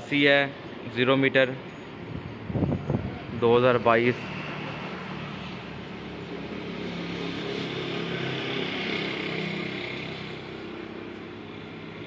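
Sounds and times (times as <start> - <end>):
vehicle engine passing by: 4.0 - 12.0.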